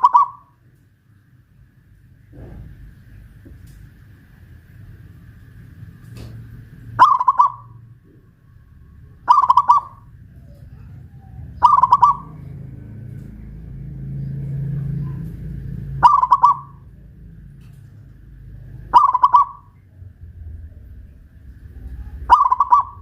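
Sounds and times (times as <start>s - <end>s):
dove cooing: 0.0s - 0.5s, 7.0s - 8.2s, 9.0s - 17.2s, 18.4s - 19.8s, 21.7s - 23.0s.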